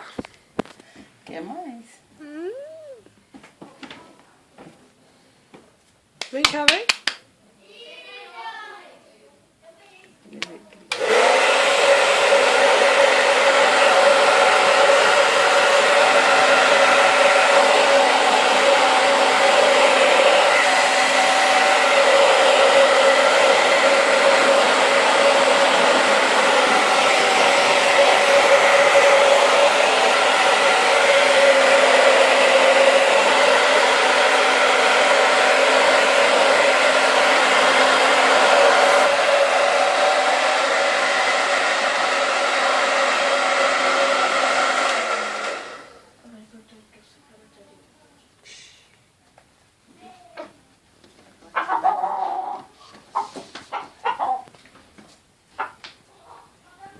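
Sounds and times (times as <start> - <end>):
hair dryer blowing: 10.9 - 46.2.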